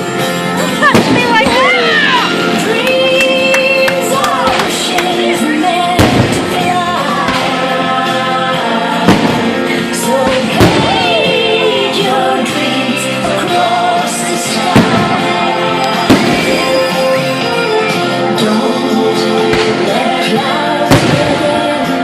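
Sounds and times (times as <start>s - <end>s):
loud music with choir singing: 0.0s - 22.0s
firework bangs: 5.9s - 7.8s, 9.0s - 11.1s, 14.6s - 17.0s, 20.9s - 21.7s.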